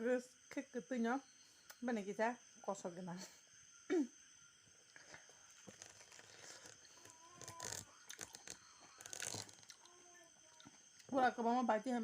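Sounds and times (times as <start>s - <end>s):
person biting and chewing: 5.6s - 9.9s.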